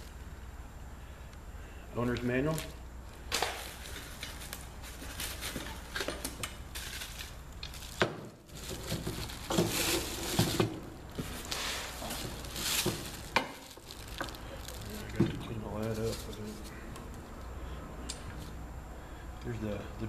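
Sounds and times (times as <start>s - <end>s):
packing material rustling: 2.4s - 16.8s.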